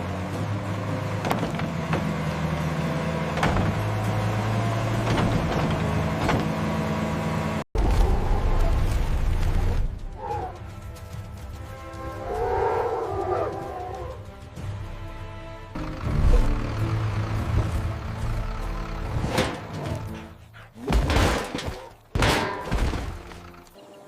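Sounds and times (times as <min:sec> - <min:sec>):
heavy machine engine running: 0:15.8 - 0:20.4
metal clanks and knocks: 0:19.0 - 0:20.3, 0:20.9 - 0:23.5.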